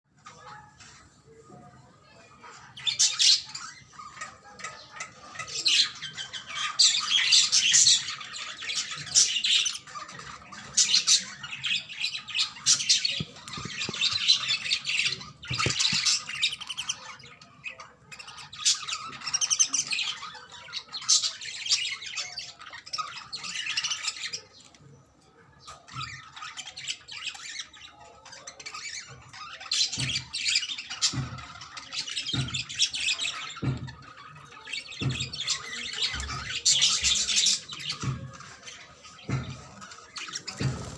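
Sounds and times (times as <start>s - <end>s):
budgerigars chattering and squawking: 0.1s - 40.9s.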